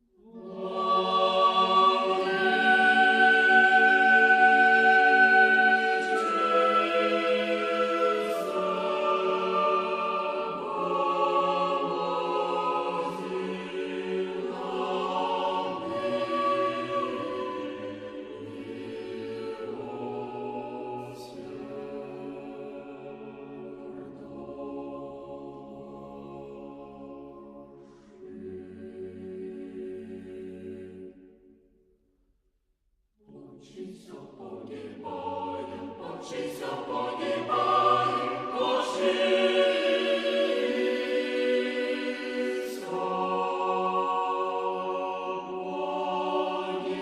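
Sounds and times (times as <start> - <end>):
choir singing held chords: 0.1 - 31.6, 33.2 - 47.0.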